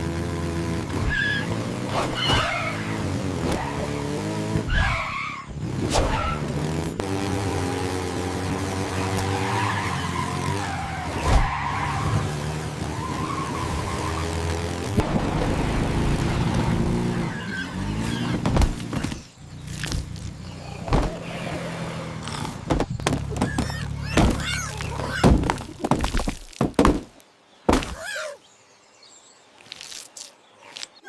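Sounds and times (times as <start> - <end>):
vehicle engine humming: 0.0 - 26.0
sharp thuds and knocks: 18.0 - 21.2, 22.4 - 28.1.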